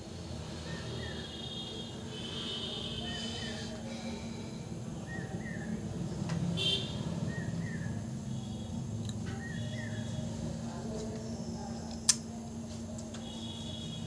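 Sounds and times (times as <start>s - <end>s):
steady low hum: 0.0s - 14.0s
small birds chirping: 0.5s - 1.8s, 5.0s - 12.2s.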